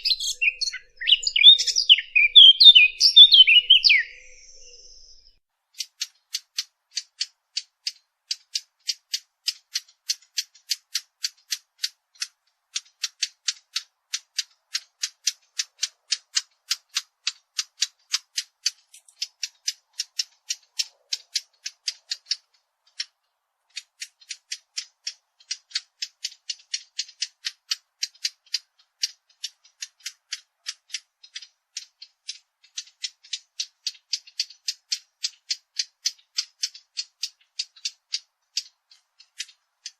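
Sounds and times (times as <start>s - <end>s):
bird chip notes: 0.0s - 5.4s.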